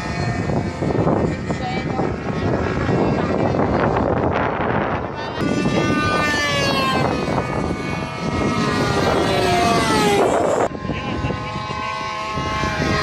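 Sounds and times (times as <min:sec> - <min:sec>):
model airplane engine whining: 0:00.0 - 0:13.0.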